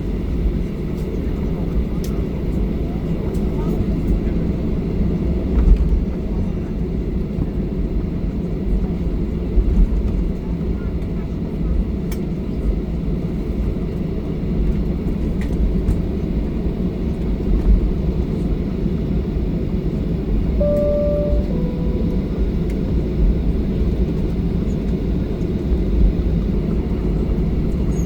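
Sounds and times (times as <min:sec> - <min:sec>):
two-note cabin chime: 0:20.6 - 0:23.1.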